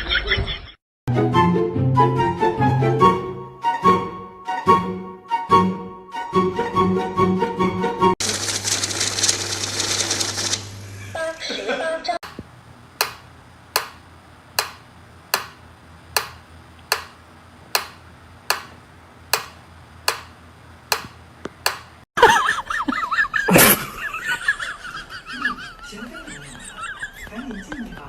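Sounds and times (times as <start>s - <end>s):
sharp clicks: 14.6s - 18.7s.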